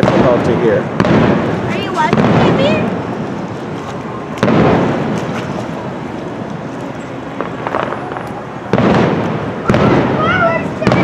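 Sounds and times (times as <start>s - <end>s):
loud fireworks boom: 0.0s - 3.2s, 4.4s - 5.4s, 7.3s - 11.0s
faint fireworks crackle: 0.0s - 11.0s
fireworks shells bursting: 7.3s - 10.2s.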